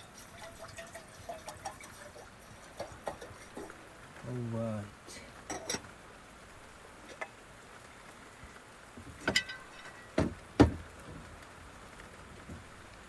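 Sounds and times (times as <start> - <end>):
rain pattering on a car: 0.0 - 13.0
knocks and clicks of handling: 9.0 - 11.3.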